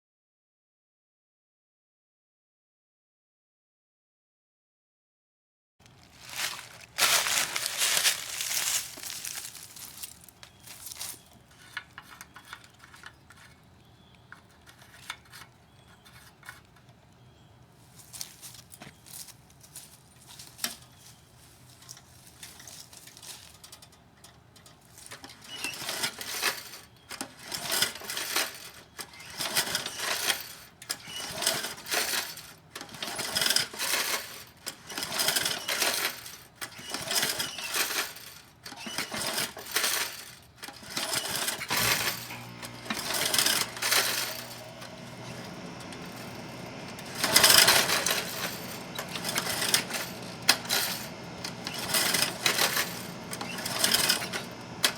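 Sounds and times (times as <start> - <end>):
lawnmower engine pull-start: 6.2 - 17.4, 20.2 - 54.9
engine running unevenly: 41.5 - 54.9.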